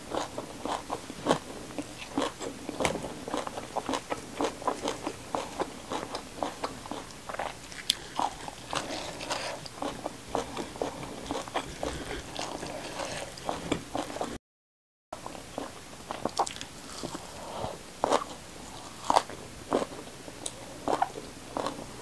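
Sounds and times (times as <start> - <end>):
crisp crunching and wet chewing: 0.1 - 14.4, 15.3 - 17.3.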